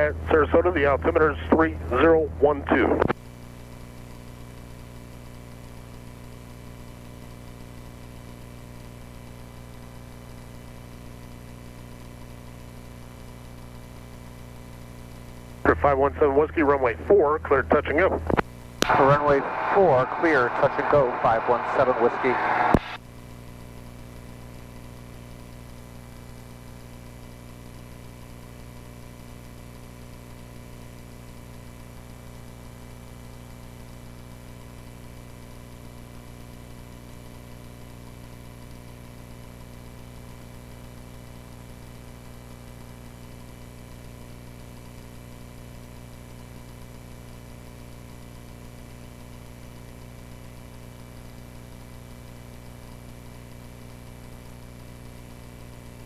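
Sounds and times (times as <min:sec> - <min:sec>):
airplane engine droning: 0:00.0 - 0:03.0, 0:15.7 - 0:23.0.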